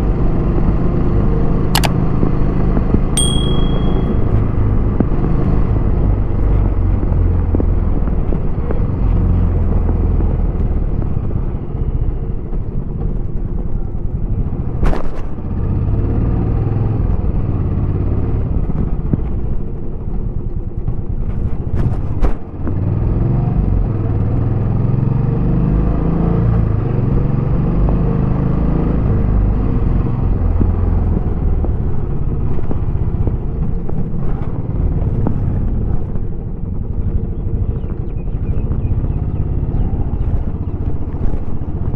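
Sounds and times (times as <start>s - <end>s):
sharp clicks: 1.8s - 2.0s
motorcycle engine rumbling: 29.0s - 41.9s.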